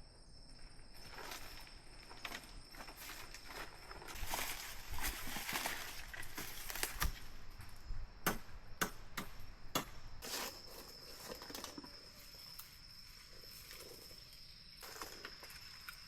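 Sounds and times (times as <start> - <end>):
high insect drone: 0.0 - 16.0
sharp knocks: 8.2 - 10.0.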